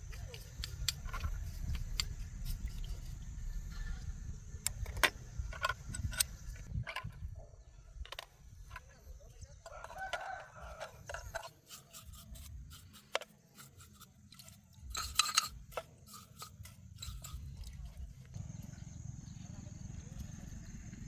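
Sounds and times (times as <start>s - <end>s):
scattered clicks and knocks: 0.0s - 3.8s, 4.6s - 7.3s, 9.6s - 18.4s
rooster crowing: 9.7s - 11.1s.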